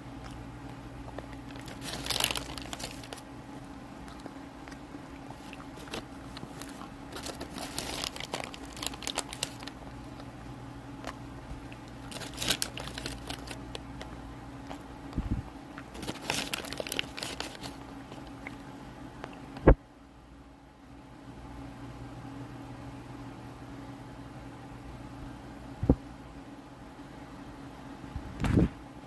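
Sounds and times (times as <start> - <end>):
crunching and crinkling while eating: 0.0 - 19.8
steady low hum: 0.0 - 29.0.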